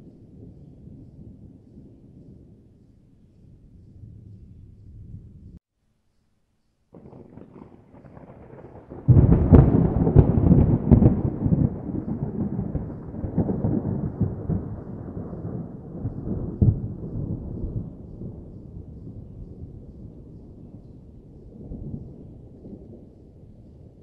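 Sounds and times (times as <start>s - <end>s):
thunder rumble: 0.0s - 5.6s, 7.0s - 24.0s
crackling thunder clap: 6.9s - 24.0s.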